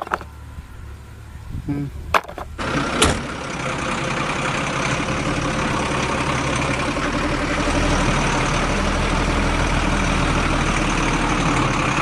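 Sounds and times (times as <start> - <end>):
engine idling with low hum: 0.0 - 12.0.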